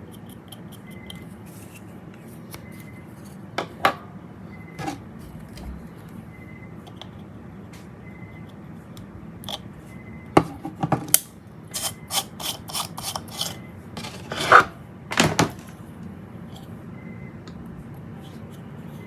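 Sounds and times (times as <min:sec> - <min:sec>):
loud scrapes: 0:13.3 - 0:14.8.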